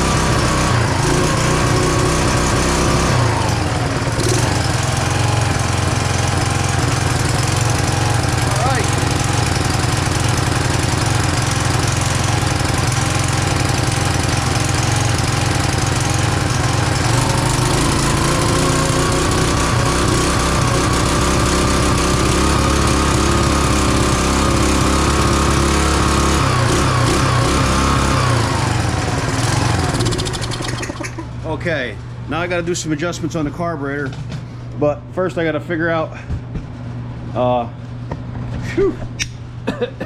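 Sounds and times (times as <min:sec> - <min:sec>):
small engine running: 0:00.0 - 0:31.4.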